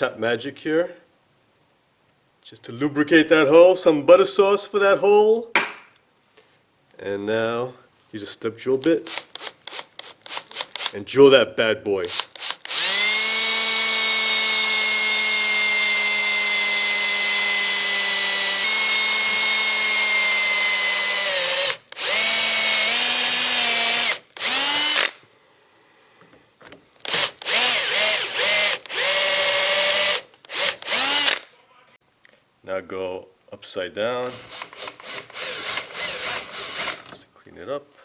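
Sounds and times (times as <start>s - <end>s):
electric drill drilling metal: 9.0s - 11.0s, 12.1s - 25.3s, 27.0s - 31.5s, 34.3s - 37.1s.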